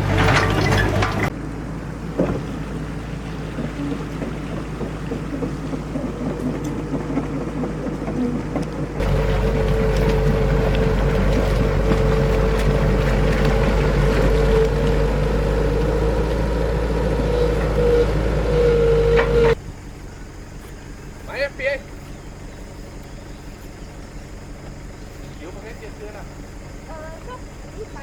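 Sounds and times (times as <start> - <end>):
excavator diesel engine: 0.0 - 28.0.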